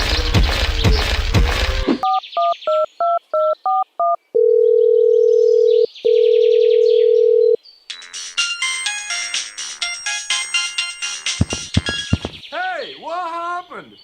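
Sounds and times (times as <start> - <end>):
telephone ringing tone: 3.7 - 8.4
musical tune: 7.9 - 12.4.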